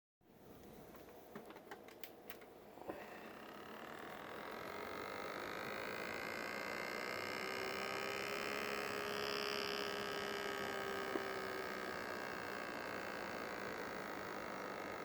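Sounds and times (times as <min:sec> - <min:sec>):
pump humming and whining: 0:02.3 - 0:15.0.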